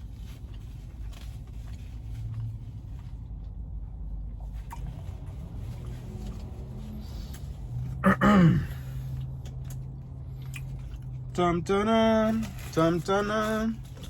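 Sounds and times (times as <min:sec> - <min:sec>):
rustles: 0:00.0 - 0:03.6.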